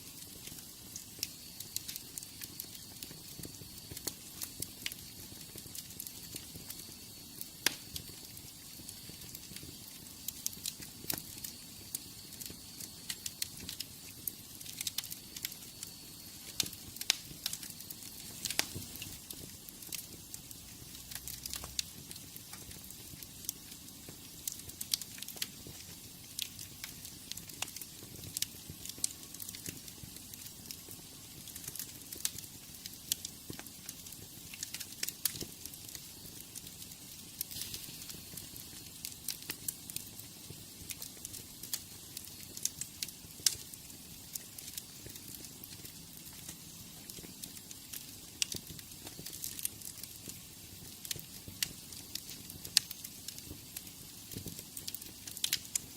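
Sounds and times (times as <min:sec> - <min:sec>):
wood fire crackling and popping: 0:00.0 - 0:55.9.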